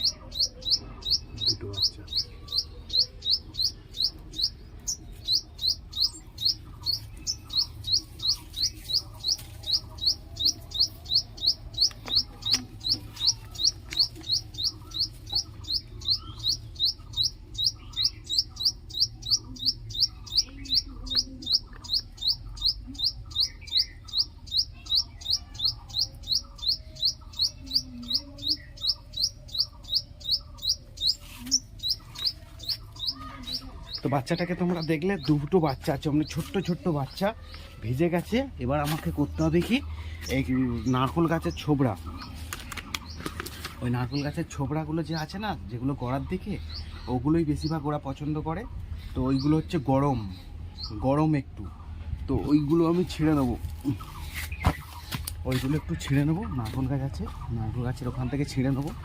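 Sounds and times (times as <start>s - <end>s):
fainter lower bird chirps: 0.0s - 35.5s
songbird high sharp chirps: 0.0s - 36.7s.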